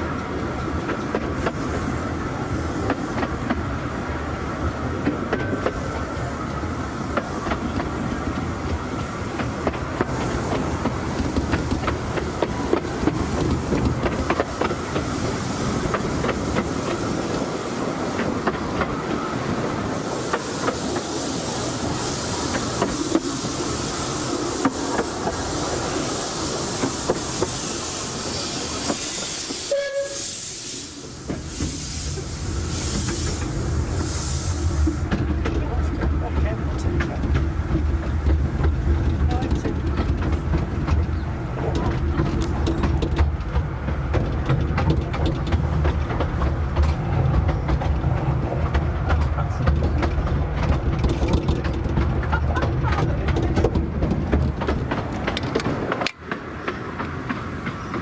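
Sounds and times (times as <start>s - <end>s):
train coach rumbling: 0.0s - 58.0s
high hiss: 19.8s - 35.1s
wheel clicks over rail joints: 35.1s - 58.0s.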